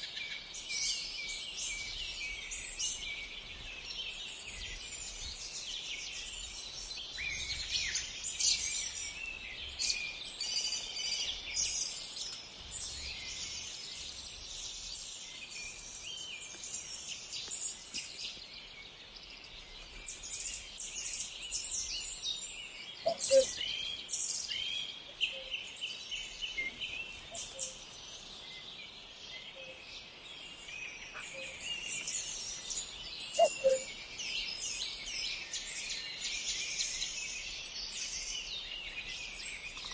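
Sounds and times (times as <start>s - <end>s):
songbirds chorus: 0.1s - 39.9s.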